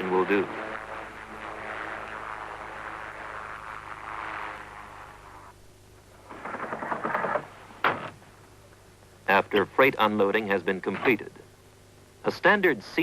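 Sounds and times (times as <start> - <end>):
aircraft engine and propeller: 0.0 - 5.2.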